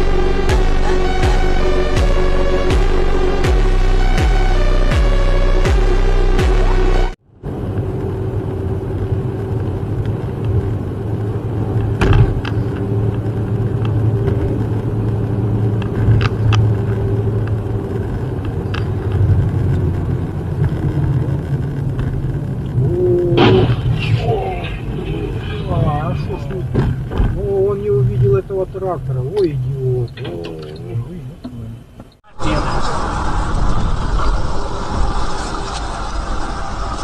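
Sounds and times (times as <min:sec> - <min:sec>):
electronic music: 0:00.0 - 0:07.2
truck engine and road noise: 0:00.0 - 0:37.0.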